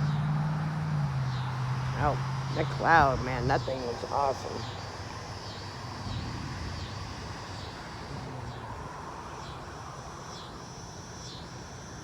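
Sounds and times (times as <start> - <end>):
insect buzzing call: 0.0 - 12.0
wind buffeting microphone: 5.9 - 9.0.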